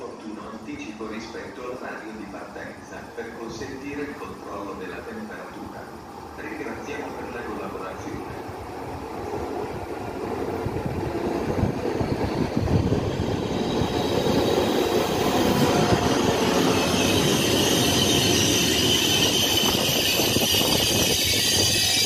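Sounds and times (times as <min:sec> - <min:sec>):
train wheels rumbling on rails: 0:03.6 - 0:22.0
high squeal and hiss: 0:16.3 - 0:22.0.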